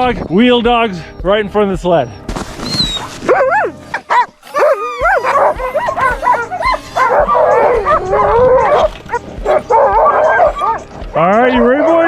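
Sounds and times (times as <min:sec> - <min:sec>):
sled dogs barking and yelping: 0:02.6 - 0:12.0.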